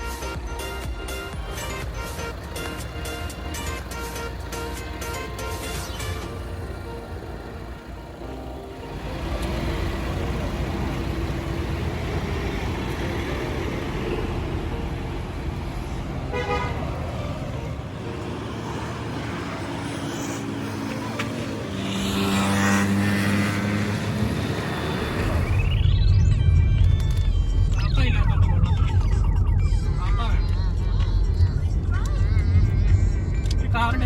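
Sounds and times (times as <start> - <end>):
road traffic noise: 0.0 - 34.0
car horn: 16.2 - 17.8.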